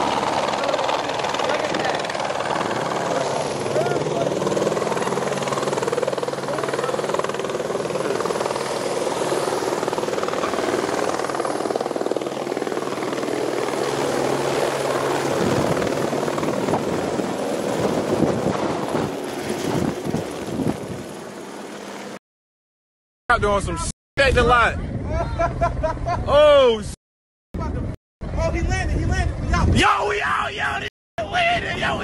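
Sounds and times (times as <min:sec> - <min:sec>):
helicopter rotor and engine: 0:00.0 - 0:22.2.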